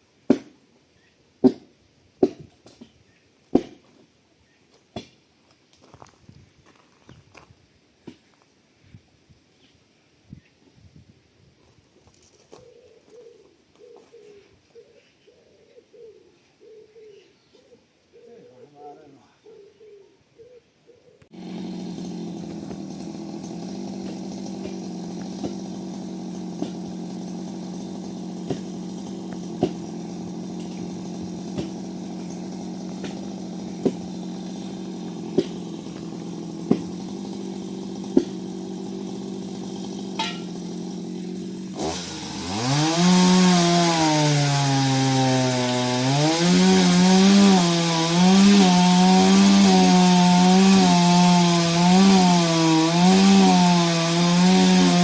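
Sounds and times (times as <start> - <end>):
chainsaw cutting wood: 21.3 - 55.0
chainsaw running: 21.3 - 55.0.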